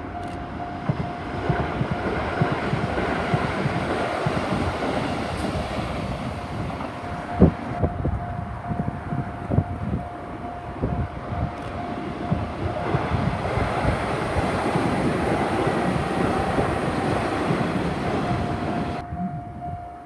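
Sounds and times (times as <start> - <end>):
level crossing warning bell: 0.0 - 20.0
train wheels clattering over rail joints: 0.8 - 8.2.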